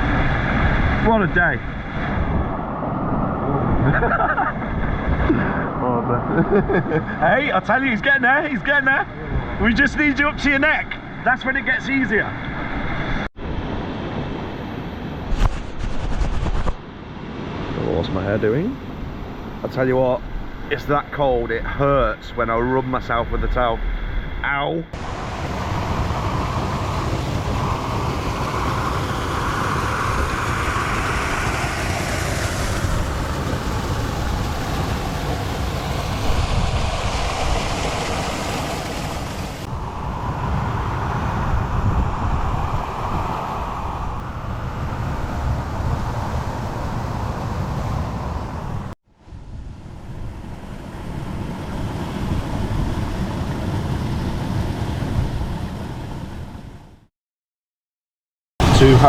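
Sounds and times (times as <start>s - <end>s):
wind buffeting microphone: 0.0s - 7.2s, 25.0s - 56.8s, 58.6s - 59.0s
waterfall and stream rushing: 25.0s - 40.3s, 58.6s - 59.0s.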